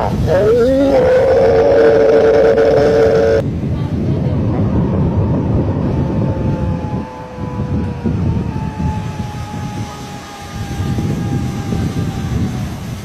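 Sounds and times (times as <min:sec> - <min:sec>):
low rumble: 0:00.0 - 0:13.0
faint droning tone sinking in pitch: 0:04.6 - 0:12.6.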